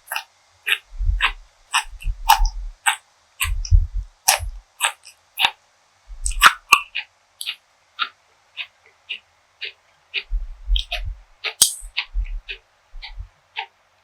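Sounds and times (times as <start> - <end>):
chewing food: 0.0 - 13.7
low thuds: 0.9 - 2.8, 3.4 - 4.6, 10.3 - 13.3.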